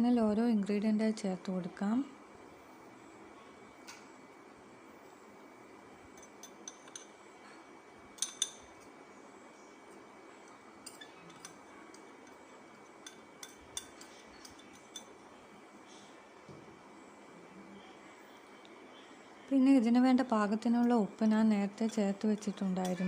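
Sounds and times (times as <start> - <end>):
spoon clinking against bowls: 6.2 - 7.2, 8.2 - 8.9, 10.5 - 12.4, 13.0 - 15.2, 21.8 - 23.0.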